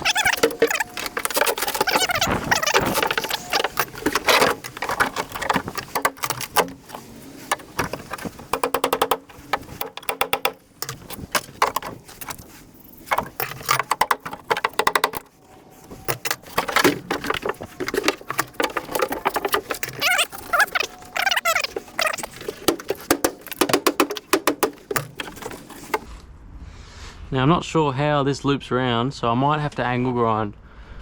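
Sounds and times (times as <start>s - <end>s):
sheet metal clattering and scraping: 0.0s - 26.1s.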